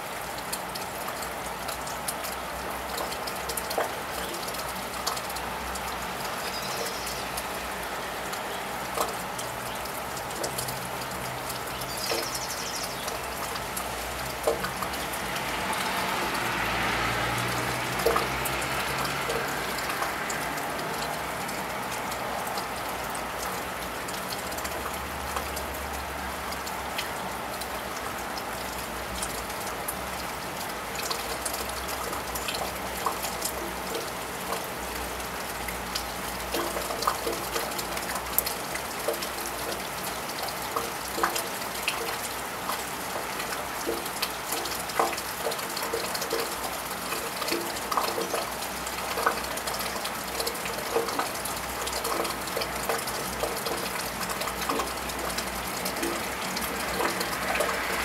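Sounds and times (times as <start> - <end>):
rain pattering on tiled roof: 0.0 - 58.0
car tyres hissing on wet road: 14.0 - 22.5, 56.2 - 58.0.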